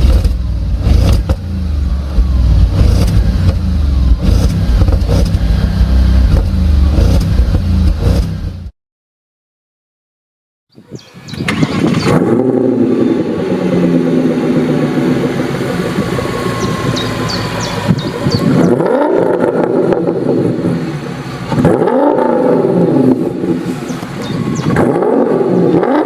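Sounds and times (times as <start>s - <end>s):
car engine revving through exhaust: 0.0s - 8.7s, 11.8s - 26.0s.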